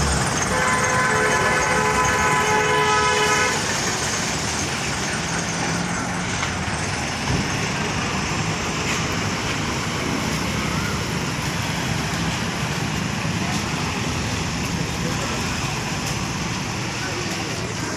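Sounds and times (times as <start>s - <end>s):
road traffic: 0.0s - 17.9s
vehicle horn: 0.5s - 3.8s.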